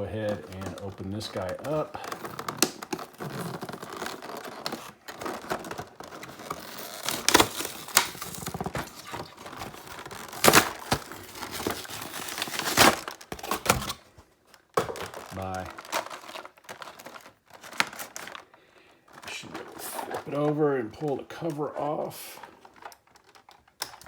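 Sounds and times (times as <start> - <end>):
cardboard tearing: 0.0 - 14.1, 14.8 - 18.4
plastic packaging crinkling: 0.0 - 24.0
sharp plastic cracks: 0.3 - 18.3, 22.5 - 24.0.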